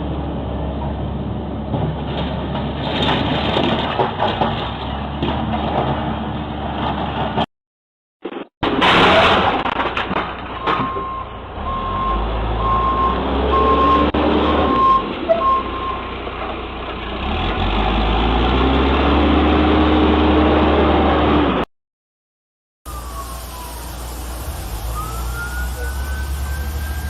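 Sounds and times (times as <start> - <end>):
reversing alarm beeping: 10.8 - 16.0, 22.9 - 27.0
diesel engine running: 22.9 - 27.0.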